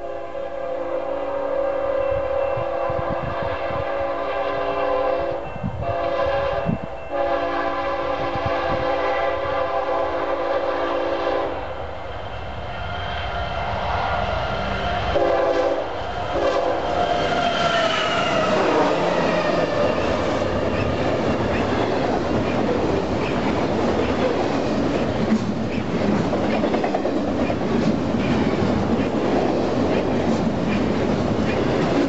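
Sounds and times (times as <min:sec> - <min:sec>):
train horn: 0:00.0 - 0:11.8, 0:15.0 - 0:20.8
train wheels clickety-clack: 0:14.9 - 0:32.0.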